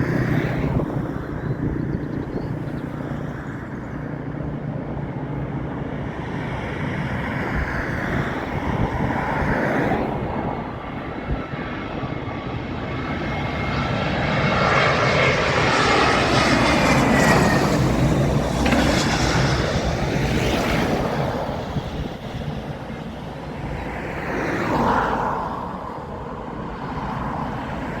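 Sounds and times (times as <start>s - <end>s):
jet airliner passing overhead: 0.0s - 28.0s
jet engine whine falling in pitch: 6.1s - 28.0s.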